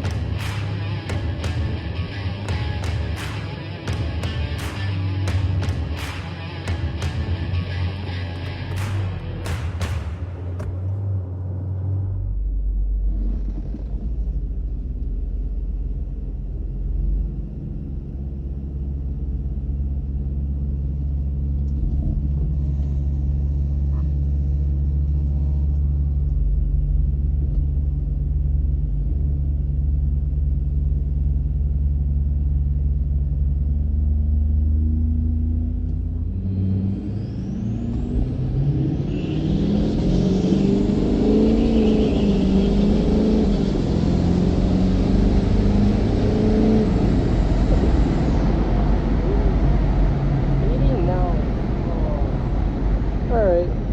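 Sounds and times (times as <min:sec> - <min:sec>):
diesel engine rumbling: 0:00.0 - 0:53.9.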